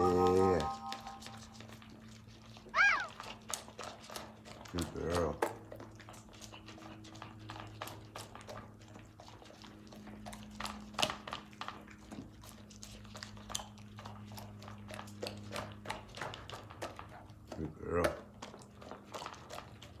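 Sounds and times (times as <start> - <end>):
steady low hum: 0.0 - 2.8
dog chewing food: 0.0 - 20.0.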